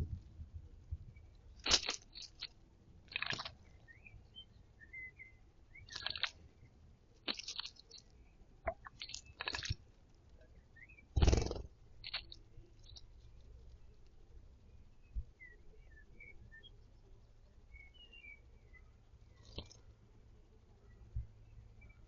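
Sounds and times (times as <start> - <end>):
faint bird chirps: 3.2 - 6.8, 7.4 - 22.0
bird wings splashing water: 7.3 - 7.9, 9.0 - 9.8.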